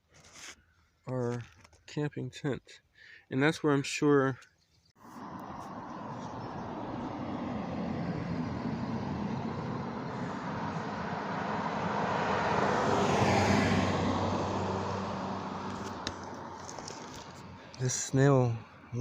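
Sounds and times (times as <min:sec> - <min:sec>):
motor vehicle passing by: 0:05.0 - 0:17.8.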